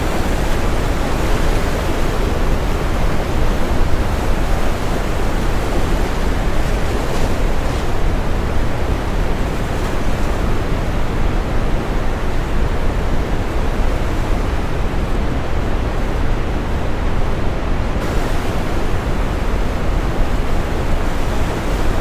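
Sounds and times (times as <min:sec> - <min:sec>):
ocean waves washing: 0:00.0 - 0:22.0.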